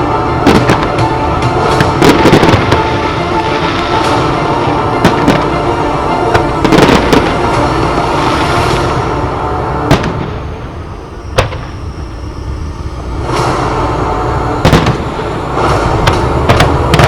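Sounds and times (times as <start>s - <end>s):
firework shells bursting: 0.0s - 17.0s
music: 0.0s - 17.0s
rumbling firework bursts: 0.0s - 17.0s.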